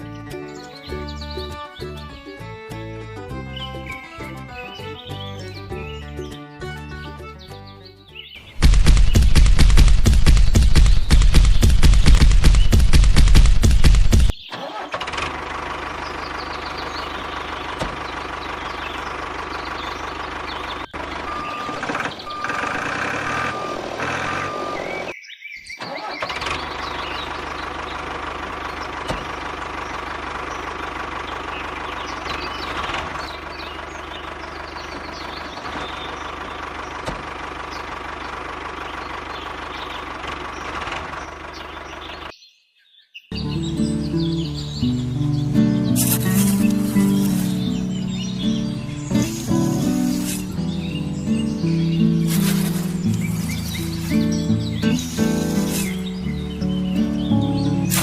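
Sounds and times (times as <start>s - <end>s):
engine running: 8.4s - 25.1s, 25.9s - 42.3s, 43.3s - 58.0s
short beeps: 21.2s - 25.0s.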